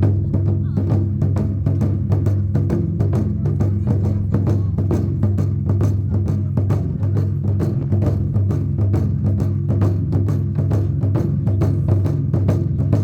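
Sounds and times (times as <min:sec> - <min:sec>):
drums beaten in fast rhythm: 0:00.0 - 0:13.0.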